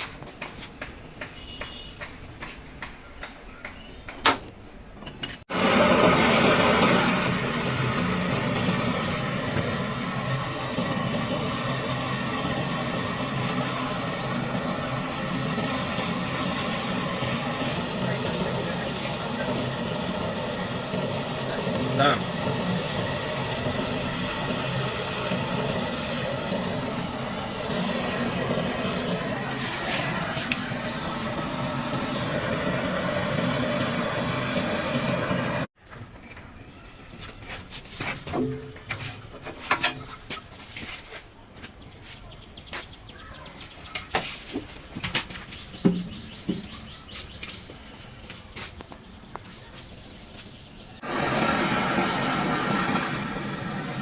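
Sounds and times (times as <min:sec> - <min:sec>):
rushing mechanical noise with hum: 0:05.2 - 0:35.8, 0:51.0 - 0:54.0.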